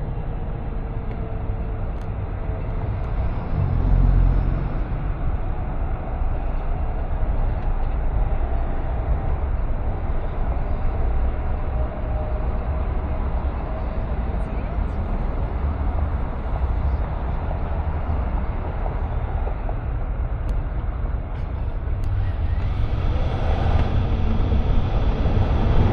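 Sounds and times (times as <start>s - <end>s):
car road and engine rumble: 0.0s - 25.9s.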